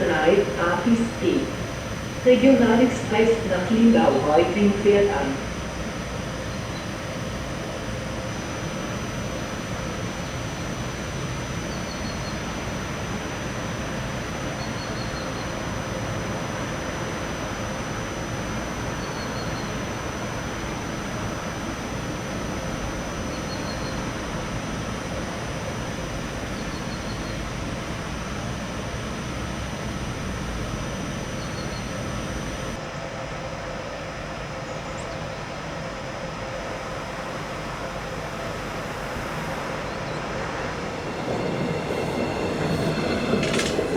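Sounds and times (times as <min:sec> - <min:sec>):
train rumbling: 0:00.0 - 0:32.8, 0:34.9 - 0:43.9
whining tones: 0:17.8 - 0:32.8, 0:36.1 - 0:43.9.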